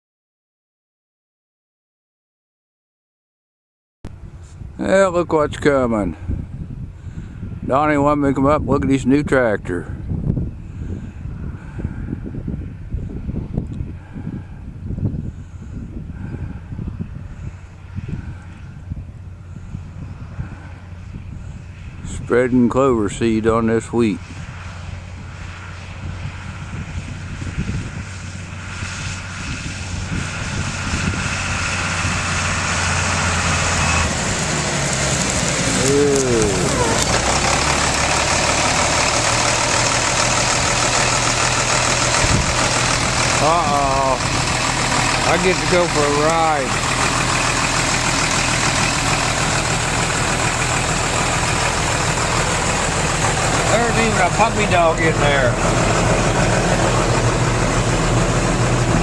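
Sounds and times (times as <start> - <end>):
tractor engine running: 15.6 - 59.0.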